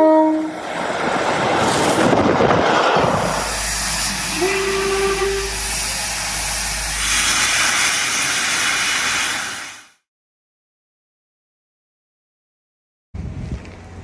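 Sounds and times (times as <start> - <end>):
steam locomotive hissing: 0.6 - 10.0
short whistle note: 4.0 - 5.8.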